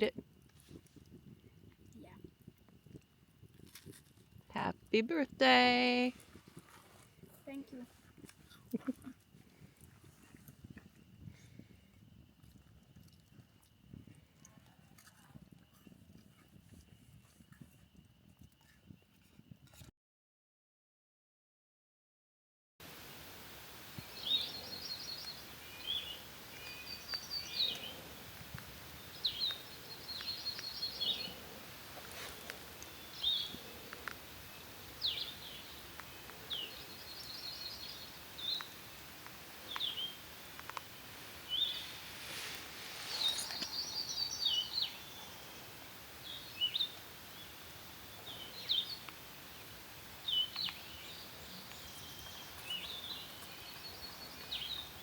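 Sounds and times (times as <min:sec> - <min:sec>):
steady background hiss: 0:22.8 - 0:55.0
songbirds singing: 0:23.0 - 0:55.0.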